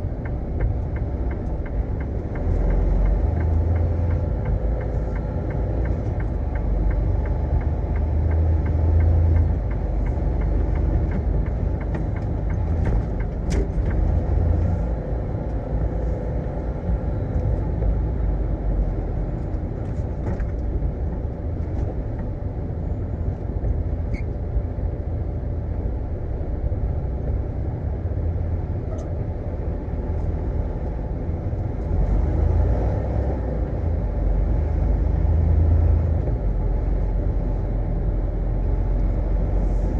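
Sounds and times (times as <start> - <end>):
truck engine and road noise: 0.0 - 39.9.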